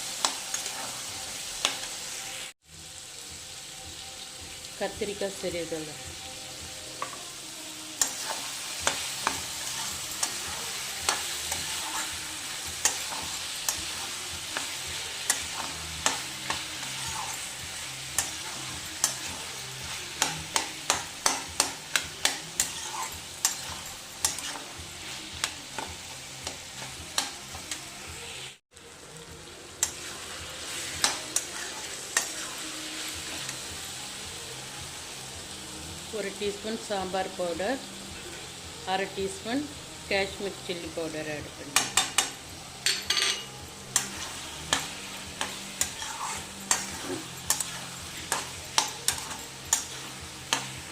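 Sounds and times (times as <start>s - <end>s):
vegetables sizzling in oil: 0.0s - 50.9s
spoon knocking and scraping pan: 18.2s - 27.8s, 41.8s - 50.9s.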